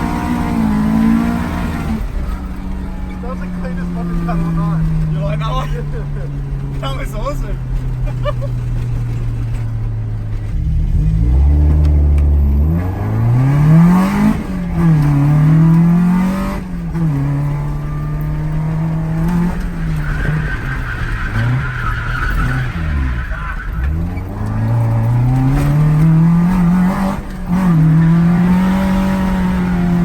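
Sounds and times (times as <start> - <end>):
car engine revving: 0.0 - 30.0
tyres squealing: 16.8 - 30.0.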